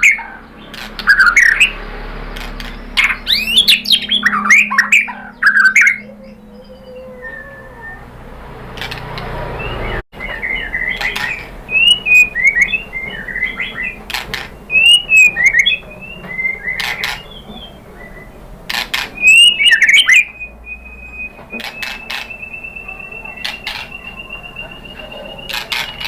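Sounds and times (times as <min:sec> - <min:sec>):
bird singing whistled notes: 0:00.0 - 0:01.8, 0:02.8 - 0:08.2, 0:09.6 - 0:18.4, 0:19.0 - 0:26.0
loud sharp bird clicks: 0:02.3 - 0:03.5, 0:08.7 - 0:09.3, 0:10.9 - 0:11.5, 0:21.6 - 0:22.6, 0:23.3 - 0:24.1
long steady bird whistle: 0:03.2 - 0:08.1, 0:11.7 - 0:14.0, 0:14.6 - 0:18.4, 0:19.2 - 0:26.0.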